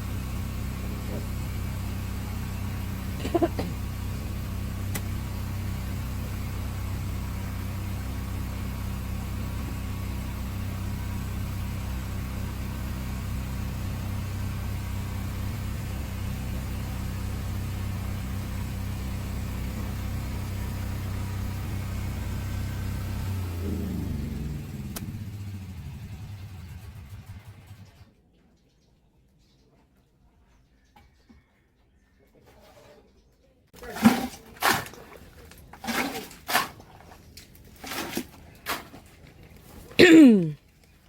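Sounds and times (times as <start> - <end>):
motor engine humming steadily: 0.0 - 28.1, 37.1 - 41.0.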